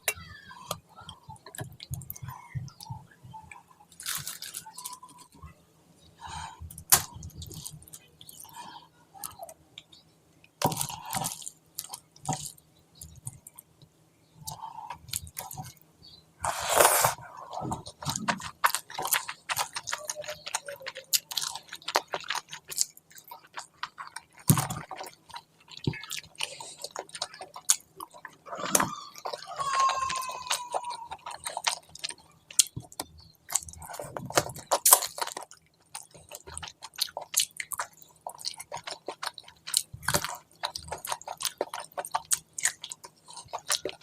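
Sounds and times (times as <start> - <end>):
sharp crunches and clicks: 3.9 - 5.4, 16.4 - 44.0
wet chewing: 16.4 - 44.0.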